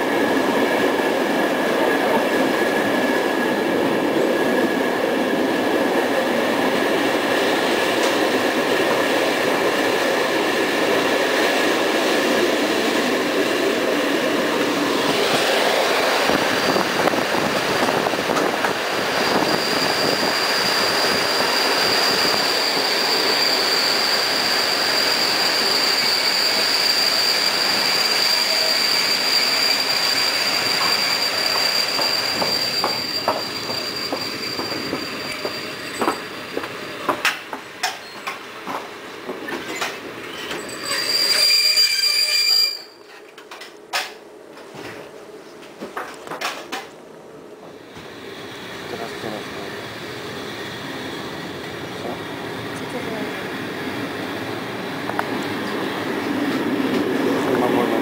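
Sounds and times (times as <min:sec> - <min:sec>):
train coach running noise: 0:00.0 - 0:58.0
high steady brake squeal: 0:18.9 - 0:36.4, 0:39.6 - 0:43.2.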